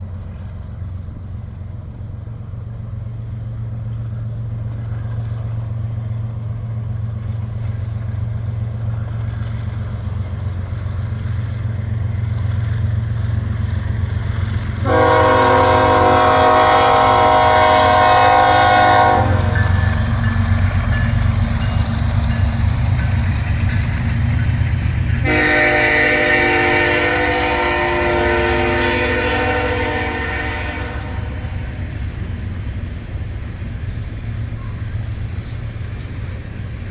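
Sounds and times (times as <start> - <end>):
locomotive engine rumble: 0.0 - 36.9
locomotive horn blast: 14.8 - 20.2, 25.2 - 31.8.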